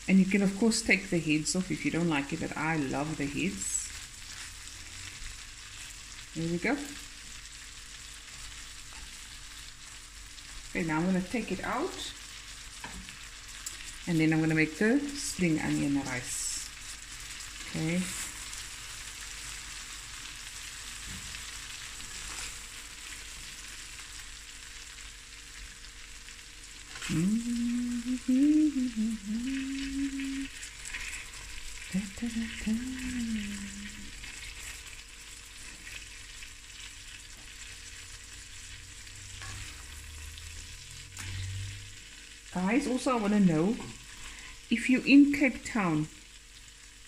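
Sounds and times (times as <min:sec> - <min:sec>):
prawns sizzling in hot oil: 0:00.0 - 0:47.0
person humming a tune: 0:27.0 - 0:30.6, 0:31.9 - 0:34.1
spatula stirring in pan: 0:29.5 - 0:42.1.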